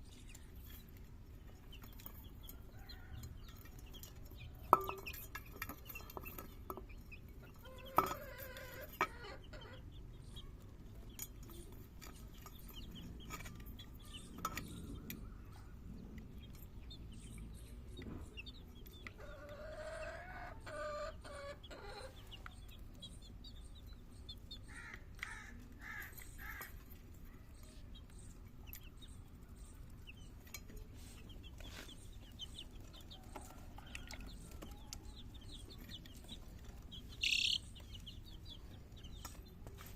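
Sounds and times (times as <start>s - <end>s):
chickens clucking: 0.0s - 39.9s
small birds chirping: 0.0s - 39.9s.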